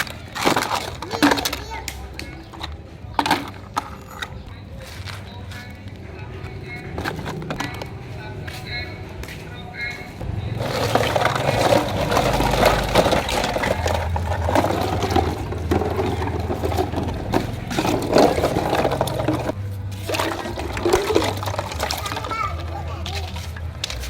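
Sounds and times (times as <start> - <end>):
low motor hum: 10.2 - 24.0
water splashing and sloshing: 10.2 - 24.0.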